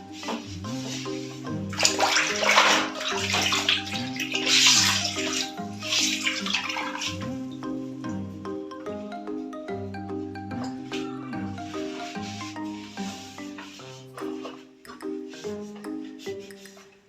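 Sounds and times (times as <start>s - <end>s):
marimba-like music: 0.0s - 17.0s
water splashing and running: 1.7s - 7.4s.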